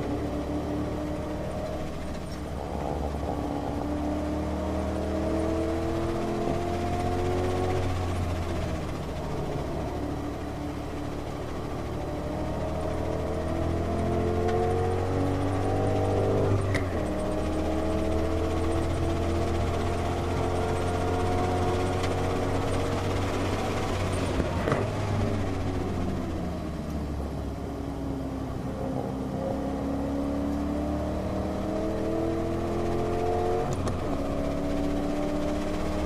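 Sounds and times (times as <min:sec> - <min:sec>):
car engine at high revs: 0:00.0 - 0:36.0
road and wind noise: 0:00.0 - 0:36.0.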